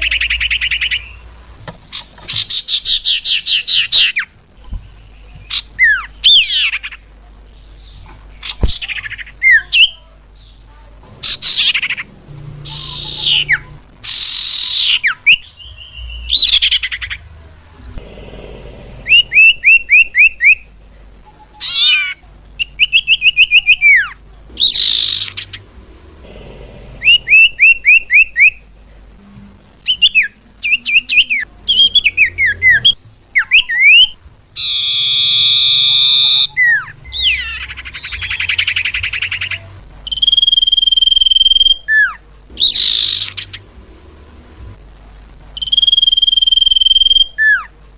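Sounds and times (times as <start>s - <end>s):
harsh buzzy bird call: 11.2s - 17.3s, 18.0s - 20.7s, 21.6s - 28.6s, 29.8s - 43.8s.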